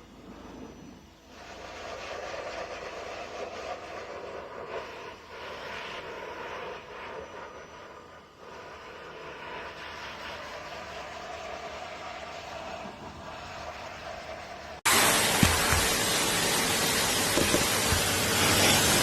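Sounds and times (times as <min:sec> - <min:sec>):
pet dryer blowing air: 0:14.8 - 0:19.0.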